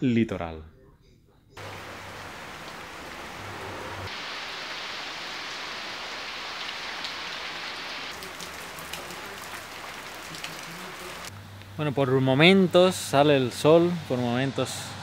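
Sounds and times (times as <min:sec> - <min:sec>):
rain falling on leaves: 0:01.6 - 0:11.3.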